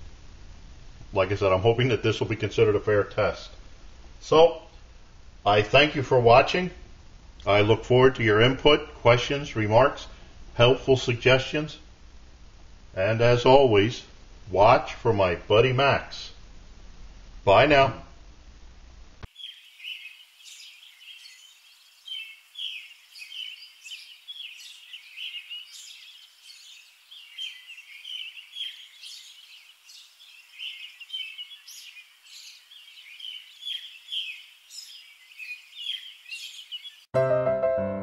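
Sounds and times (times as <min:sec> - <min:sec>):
small birds chirping: 0:19.2 - 0:37.1
piano music: 0:37.2 - 0:38.0.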